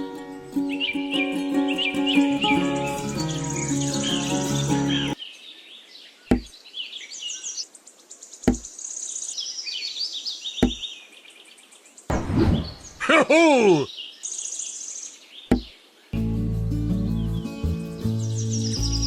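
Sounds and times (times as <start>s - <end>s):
birdsong with chirps and trills: 0.0s - 13.0s, 13.8s - 19.0s
sharp knocks: 6.3s - 6.5s, 8.5s - 8.7s, 10.6s - 10.8s, 15.5s - 15.7s.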